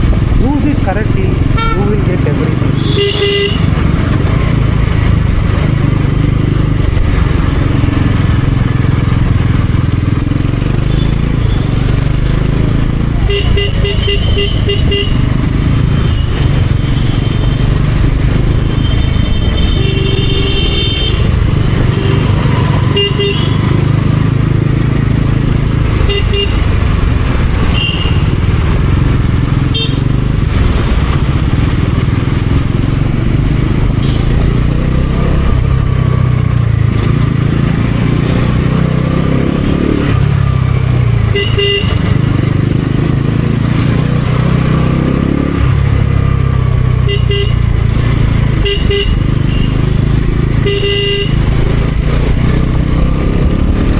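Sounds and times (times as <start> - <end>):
motorcycle engine running: 0.0 - 53.9
vehicle horn honks: 1.6 - 1.8, 2.8 - 3.7, 13.3 - 15.2, 22.0 - 23.7, 26.1 - 26.6, 27.7 - 28.3, 29.7 - 30.1, 41.3 - 42.1, 47.1 - 47.6, 48.6 - 49.8, 50.6 - 51.4.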